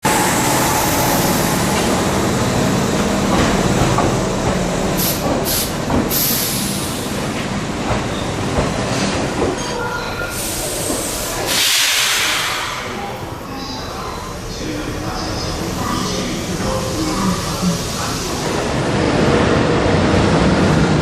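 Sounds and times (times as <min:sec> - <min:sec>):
train wheels and motors rumbling: 0:00.1 - 0:12.6
air hiss bursts: 0:10.4 - 0:12.9.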